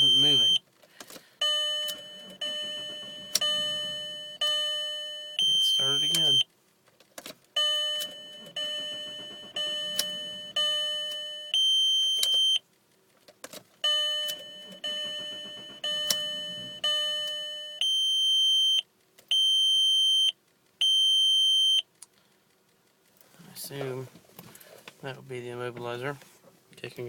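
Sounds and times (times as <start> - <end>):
steady beeps: 0.0 - 0.6, 1.4 - 6.5, 7.6 - 12.6, 13.8 - 21.8
car warning chimes: 0.0 - 0.7, 1.4 - 6.5, 7.6 - 12.7, 13.8 - 21.9
car engine catching: 1.9 - 4.5, 7.0 - 10.8, 13.7 - 16.9.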